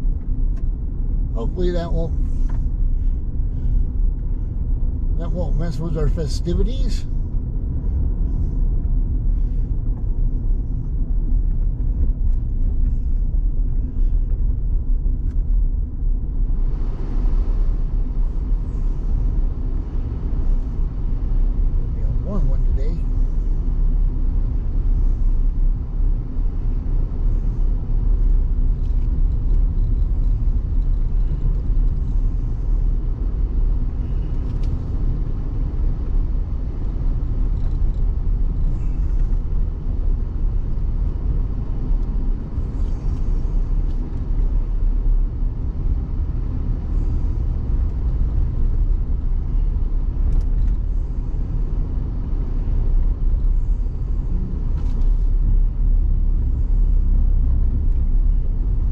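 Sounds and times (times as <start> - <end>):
car rumbling on dirt road: 0.0 - 58.9.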